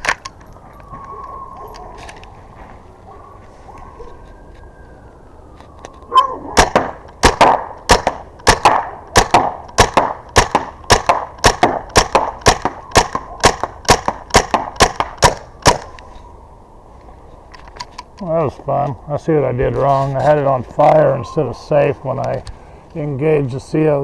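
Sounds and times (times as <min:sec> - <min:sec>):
marker rifle firing sharp cracks: 0:06.6 - 0:15.9.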